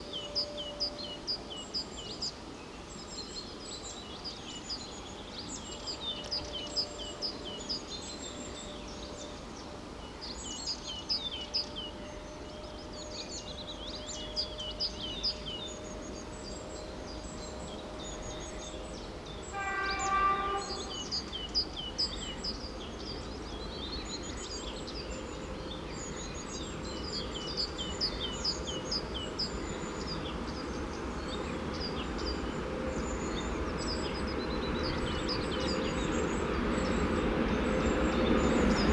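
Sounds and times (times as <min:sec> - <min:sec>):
faint locomotive horn blast: 0:04.6 - 0:24.3.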